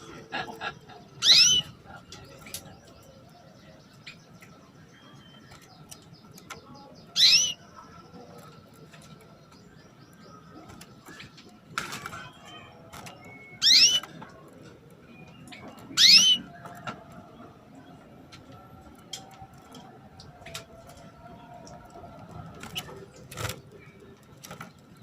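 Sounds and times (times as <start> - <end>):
canary chirping: 0.6 - 11.5, 12.3 - 14.3, 15.1 - 17.4.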